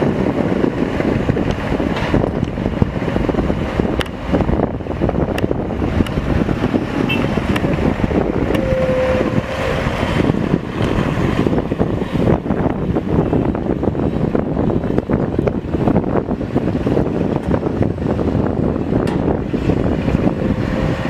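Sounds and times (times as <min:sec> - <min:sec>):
heavy diesel machinery running: 0:00.0 - 0:21.0
wind buffeting microphone: 0:00.0 - 0:21.0
steady tone: 0:06.4 - 0:12.2.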